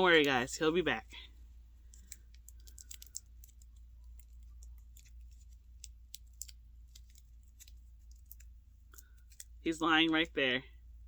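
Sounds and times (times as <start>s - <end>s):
steady low hum: 0.0s - 11.0s
plastic parts clicking: 1.9s - 9.6s.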